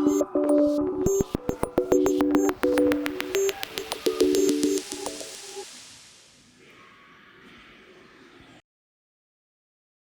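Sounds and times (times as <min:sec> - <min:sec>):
clicking beat: 0:00.0 - 0:05.6
held synthesizer notes: 0:00.0 - 0:05.7.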